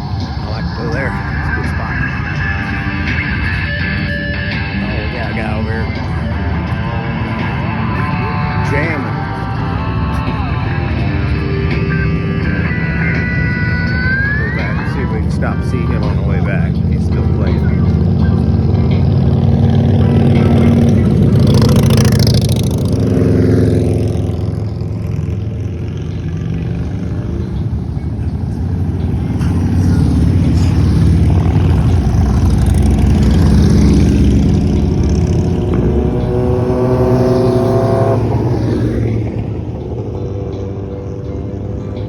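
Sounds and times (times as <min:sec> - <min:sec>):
engine revving: 0:00.0 - 0:42.0
motorcycle engines running: 0:00.0 - 0:42.0.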